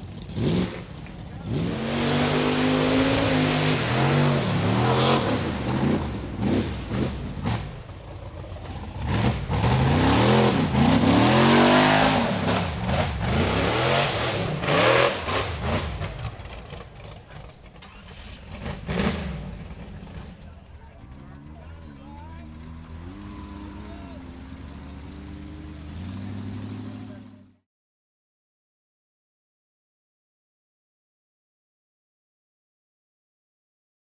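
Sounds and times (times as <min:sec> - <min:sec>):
buggy engine revving hard: 0:00.0 - 0:20.7, 0:22.4 - 0:27.6.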